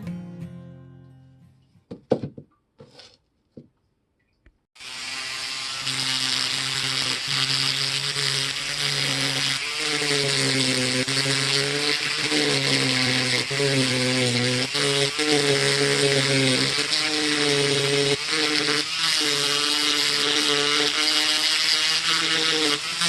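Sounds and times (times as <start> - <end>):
electric power tool running: 4.8 - 23.0.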